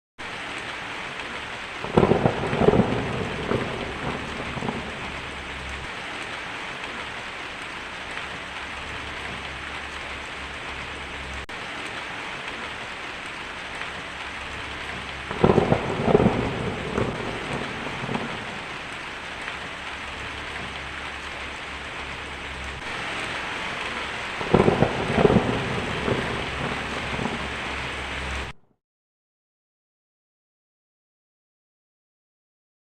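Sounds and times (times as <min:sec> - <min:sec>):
heavy rain on a tin roof: 0:00.2 - 0:28.6
thunder rolling: 0:01.8 - 0:07.0, 0:13.7 - 0:28.6.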